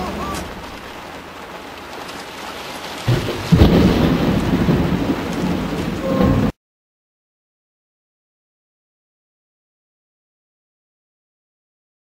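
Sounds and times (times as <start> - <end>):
steady rain: 0.0 - 6.6
thunder crack and rumble: 2.9 - 6.6.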